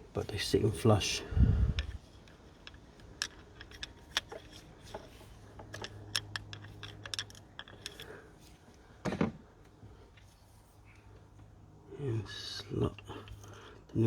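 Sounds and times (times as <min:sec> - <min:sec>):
small metal parts clicking: 0:01.7 - 0:08.5.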